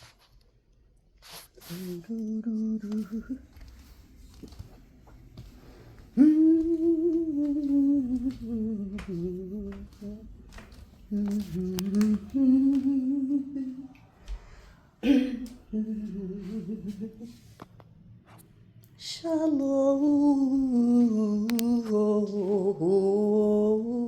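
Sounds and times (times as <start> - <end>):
woman humming: 1.7 - 3.6, 6.2 - 10.3, 11.1 - 14.0, 15.0 - 17.5.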